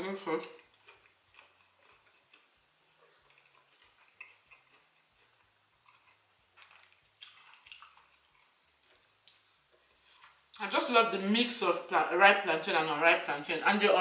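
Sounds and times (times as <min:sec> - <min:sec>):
person chewing with mouth smacks: 0:00.4 - 0:10.6.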